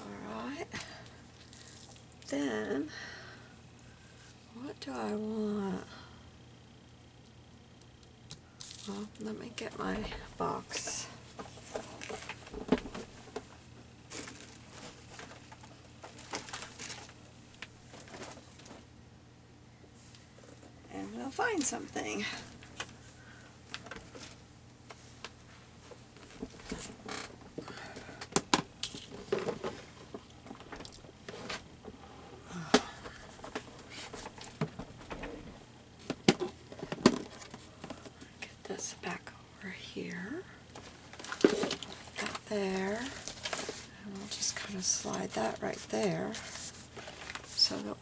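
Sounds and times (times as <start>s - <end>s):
papers rustling and shuffling: 9.9s - 18.9s, 21.5s - 38.4s, 40.7s - 48.0s
box and papers handled on table: 40.8s - 47.6s.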